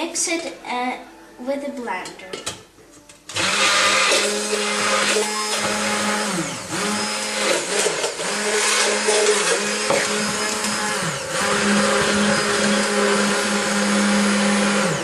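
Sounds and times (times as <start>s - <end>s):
electric blender running: 3.3s - 15.0s.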